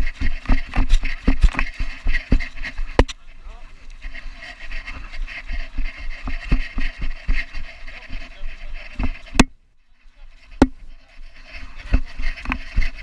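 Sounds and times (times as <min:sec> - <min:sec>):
thumps and knocks: 0:09.0 - 0:09.6, 0:10.6 - 0:10.8.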